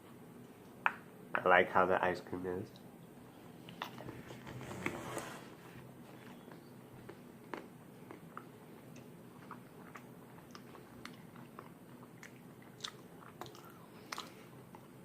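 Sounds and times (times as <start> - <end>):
mouth chewing ice cream: 6.0 - 15.0.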